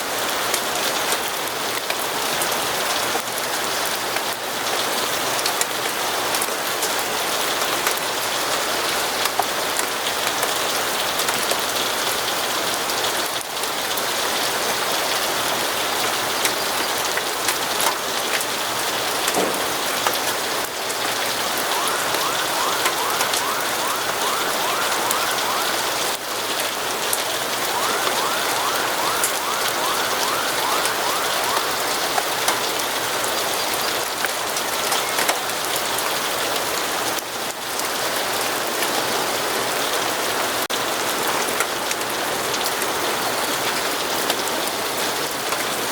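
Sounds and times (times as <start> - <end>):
steady rain falling: 0.0 - 45.9
rapid repeated rising tones: 21.6 - 26.2, 27.6 - 32.8.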